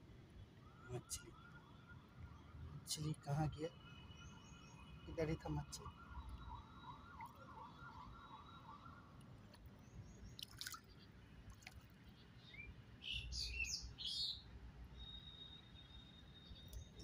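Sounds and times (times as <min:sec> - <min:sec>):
distant warbling siren: 0:00.5 - 0:09.4.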